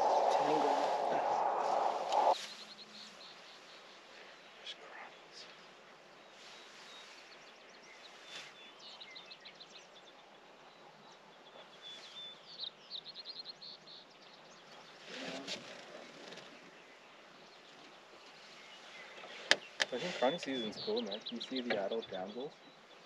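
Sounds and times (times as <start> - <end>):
brief soft noise: 0.0 - 2.5
faint songbird singing: 0.0 - 23.0.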